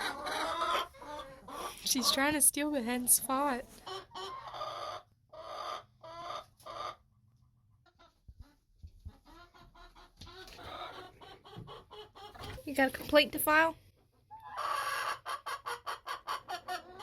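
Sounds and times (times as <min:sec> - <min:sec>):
hens growling: 0:00.0 - 0:02.3
hens clucking: 0:00.0 - 0:17.0.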